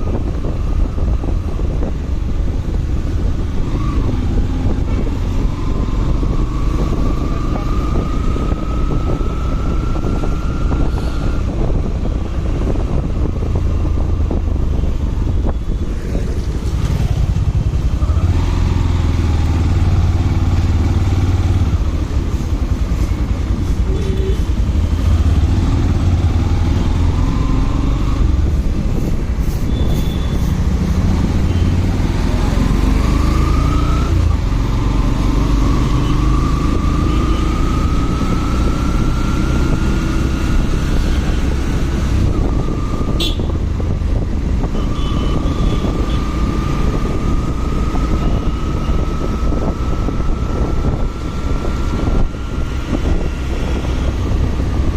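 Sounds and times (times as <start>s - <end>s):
wind rumble on microphone: 0.0s - 54.9s.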